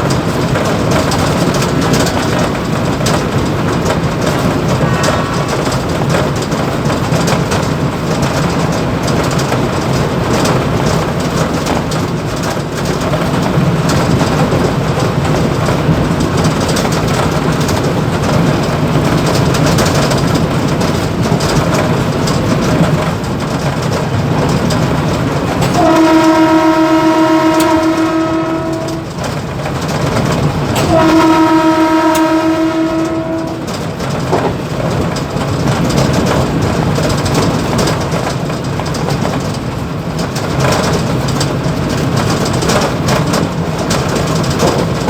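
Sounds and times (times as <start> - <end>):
train rumbling and rattling: 0.0 - 45.0
train horn: 4.3 - 6.7, 25.6 - 29.3, 30.8 - 34.0.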